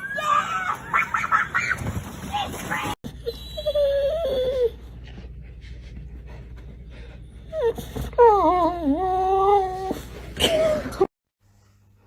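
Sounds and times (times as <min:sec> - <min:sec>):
dog whining: 0:03.1 - 0:05.0, 0:07.4 - 0:11.1.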